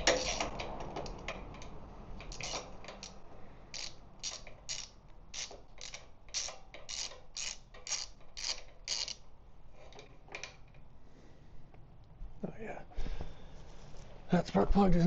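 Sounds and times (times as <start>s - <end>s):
ratchet wrench clicking: 0.0s - 9.2s.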